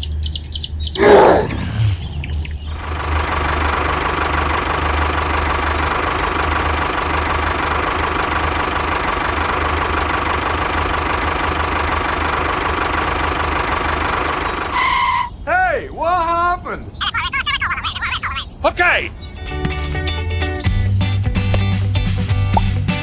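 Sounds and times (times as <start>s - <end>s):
tractor engine idling: 2.6s - 15.2s.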